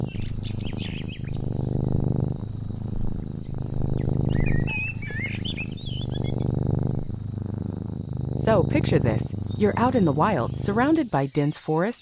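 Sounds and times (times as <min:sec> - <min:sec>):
bird chirps: 0:00.0 - 0:01.4, 0:04.0 - 0:06.6
insects chorus: 0:00.0 - 0:12.0.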